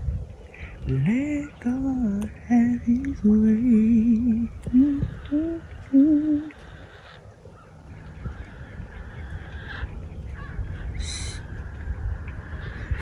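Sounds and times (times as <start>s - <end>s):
woman humming: 0.9s - 6.5s
high-pitched bird call: 11.0s - 11.5s.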